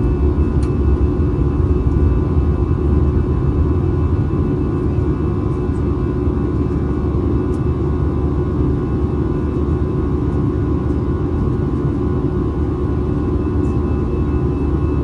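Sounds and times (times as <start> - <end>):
low rumble of airflow and engines: 0.0 - 15.0.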